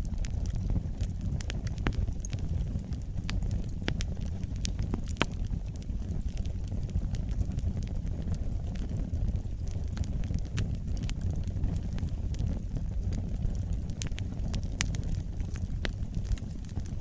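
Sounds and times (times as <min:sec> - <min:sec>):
wood fire crackling: 0:00.0 - 0:17.0
sharp pops and snaps: 0:00.2 - 0:09.0.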